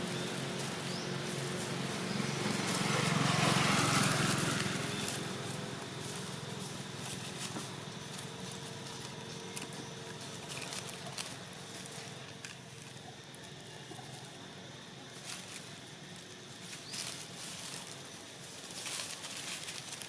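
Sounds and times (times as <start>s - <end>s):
engine passing: 0.0s - 12.9s
noisy outdoor background: 0.0s - 20.0s.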